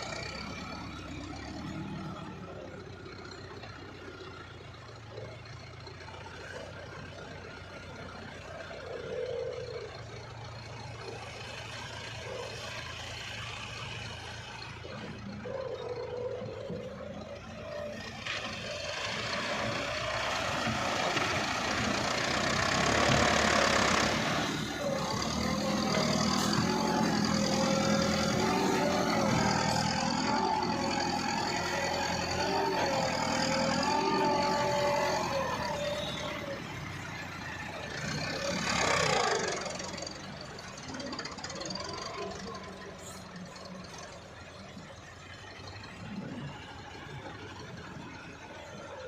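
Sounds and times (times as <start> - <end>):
tractor engine under load: 0.0 - 49.0.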